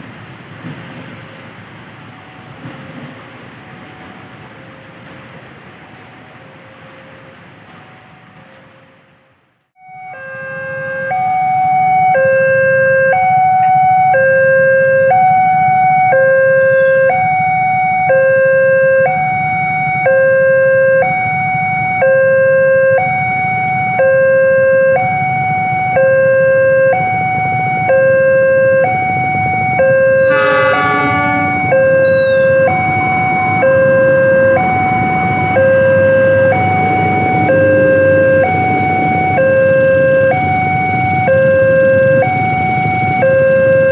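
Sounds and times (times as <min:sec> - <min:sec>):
two-tone electronic alarm: 0:09.8 - 0:43.9
short many-toned squeal: 0:30.2 - 0:32.9.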